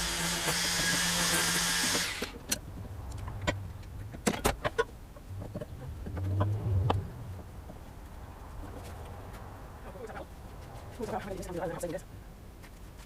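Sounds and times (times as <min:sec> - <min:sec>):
low motor hum: 0:05.2 - 0:07.7.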